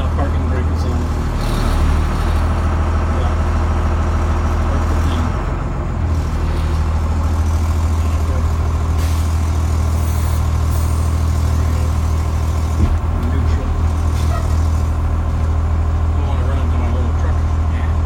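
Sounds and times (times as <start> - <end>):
diesel bus engine droning: 0.0 - 18.0.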